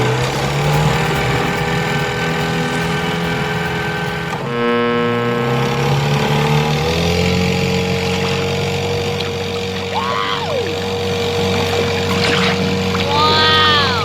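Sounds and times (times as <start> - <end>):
rising and falling pitched sound: 0.0 - 5.3
cartoon vehicle engine: 0.0 - 6.6.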